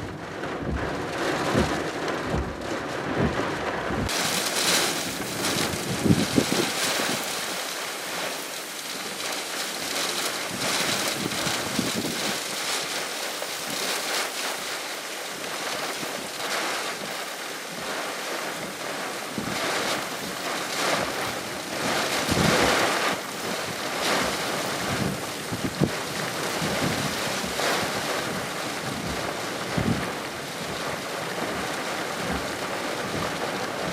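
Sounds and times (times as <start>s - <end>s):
strong wind gusting: 0.0s - 8.4s, 10.5s - 12.4s
wind buffeting microphone: 0.0s - 12.6s, 19.3s - 31.1s.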